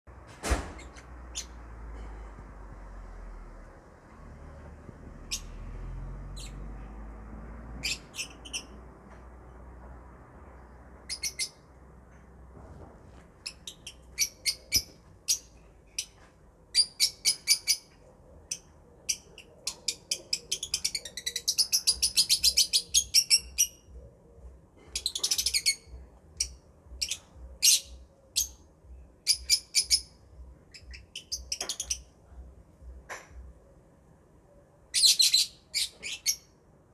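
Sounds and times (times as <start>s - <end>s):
parrots chirping: 0.8s - 1.6s, 5.2s - 6.8s, 7.5s - 8.9s, 11.0s - 11.7s, 13.4s - 24.0s, 24.9s - 28.6s, 29.2s - 32.1s, 34.9s - 36.6s.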